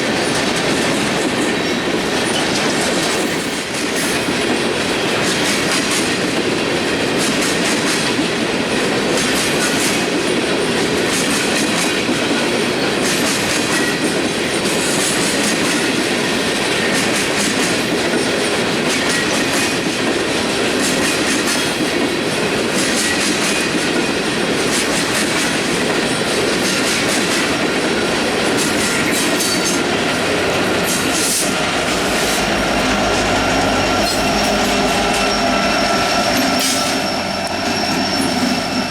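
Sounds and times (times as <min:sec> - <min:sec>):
train wheels clattering over rails: 0:00.0 - 0:38.9
wheel squeal: 0:28.7 - 0:38.9.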